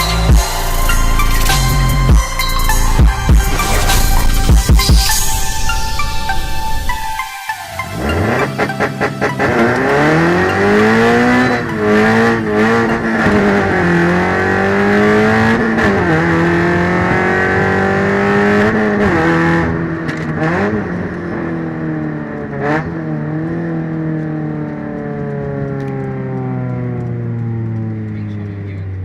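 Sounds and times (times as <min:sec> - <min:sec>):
car engine and exhaust under throttle: 0:00.0 - 0:07.2, 0:07.8 - 0:29.0.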